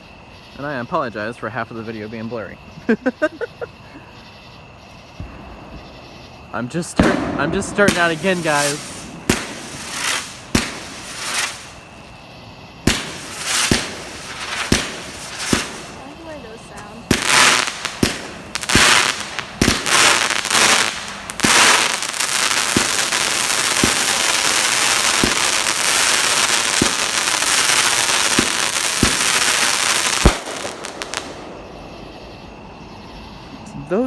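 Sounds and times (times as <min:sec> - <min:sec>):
fireworks crackling: 0:05.0 - 0:32.6
fireworks bangs: 0:05.0 - 0:33.1
sharp pops: 0:06.9 - 0:12.0, 0:12.8 - 0:31.7.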